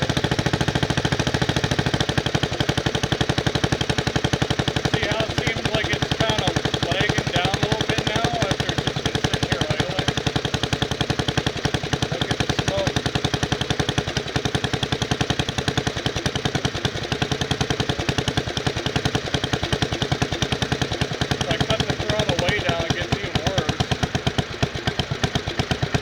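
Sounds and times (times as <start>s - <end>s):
engine exhaust beating rapidly: 0.0s - 26.0s.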